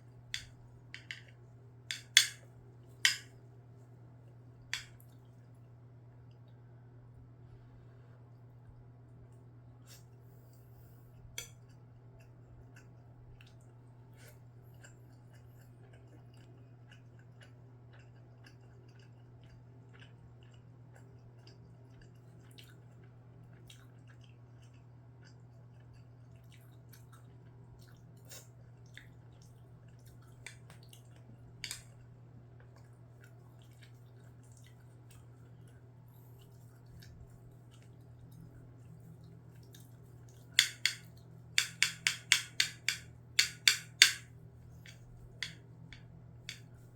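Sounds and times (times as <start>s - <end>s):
quiet chewing with clicks: 2.8s - 6.8s, 8.3s - 41.7s
sharp taps: 40.6s - 41.0s, 41.6s - 44.2s.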